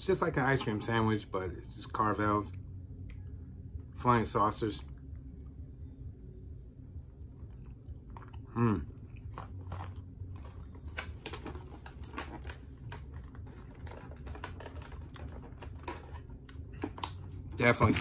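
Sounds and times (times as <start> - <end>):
person chewing wetly: 7.2 - 17.2.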